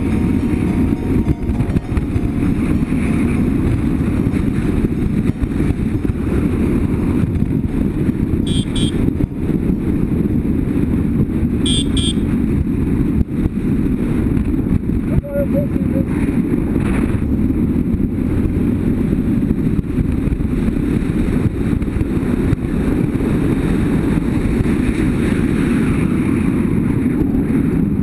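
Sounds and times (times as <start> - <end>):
motorcycle engine running: 0.0 - 12.3
double beep: 8.4 - 9.0.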